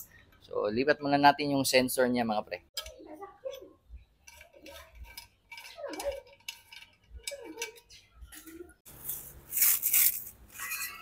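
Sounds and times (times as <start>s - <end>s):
metal parts clinking and scraping: 4.2s - 11.0s.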